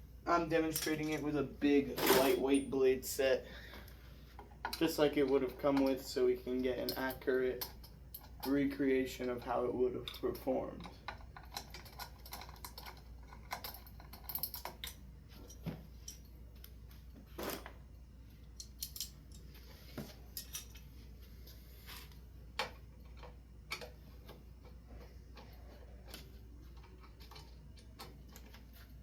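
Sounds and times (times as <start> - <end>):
steady low hum: 0.0 - 29.0
light clicks and taps of parts: 3.6 - 17.1, 21.5 - 29.0.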